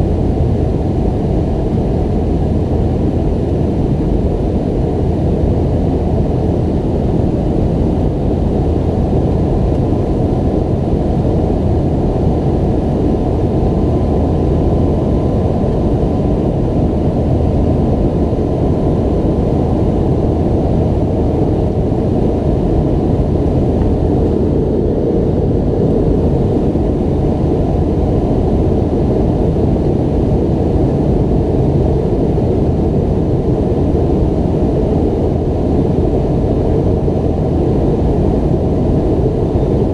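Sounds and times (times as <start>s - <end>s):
airliner cabin engine rush: 0.0s - 39.9s
faint steady hum: 0.0s - 39.9s.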